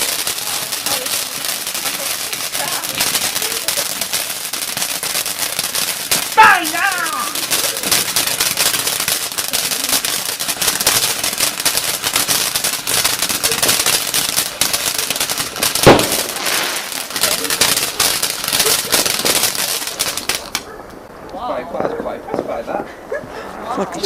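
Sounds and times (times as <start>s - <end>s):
dense rapid crackling: 0.0s - 22.8s
firework fountain hissing: 0.0s - 24.0s
loud bang: 15.8s - 16.8s.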